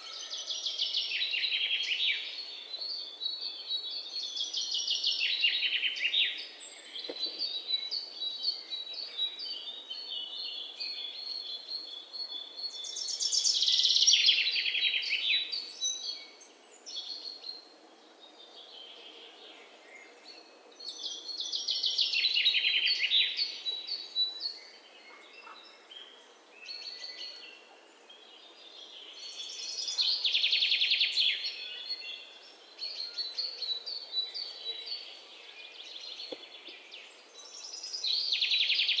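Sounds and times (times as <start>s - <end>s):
quiet bird chirps: 0.0s - 39.0s.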